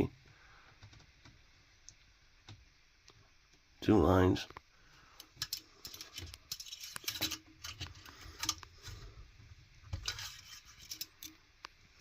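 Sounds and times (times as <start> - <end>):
hands handling small hard objects: 5.2 - 9.1, 9.9 - 11.4.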